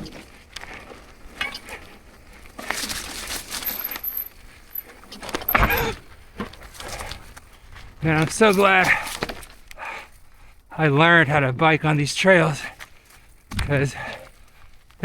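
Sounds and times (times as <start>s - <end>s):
tyres rushing over dirt: 0.0s - 9.7s
bike chain rattling and clinking: 2.7s - 7.0s.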